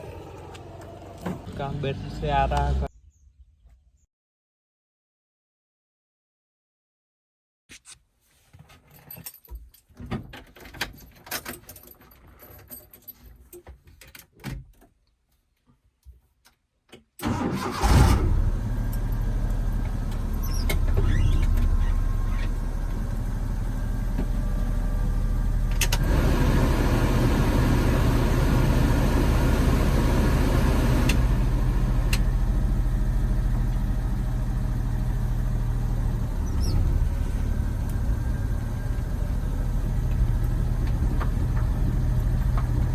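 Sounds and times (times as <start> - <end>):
car engine starting and idling: 0.0 - 2.9, 17.2 - 42.9.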